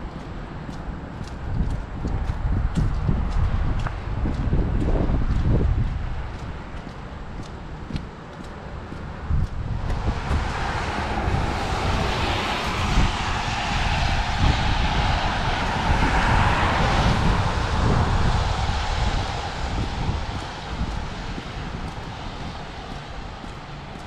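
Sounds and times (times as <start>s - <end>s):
wind rumble on microphone: 0.0s - 24.0s
vehicle passing on wet road: 8.8s - 24.0s.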